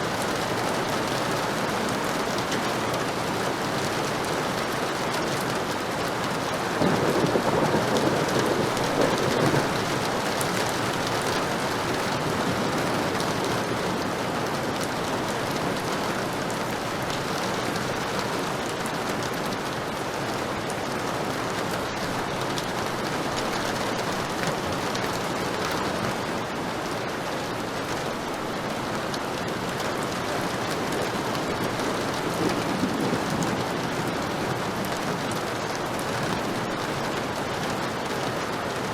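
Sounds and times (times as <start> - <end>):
heavy rain falling: 0.0 - 38.9
thunder rumbling: 6.8 - 14.2, 31.4 - 35.5.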